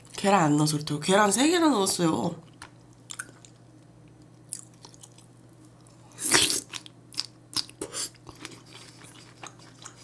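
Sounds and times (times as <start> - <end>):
chewing crunches: 4.5 - 10.0.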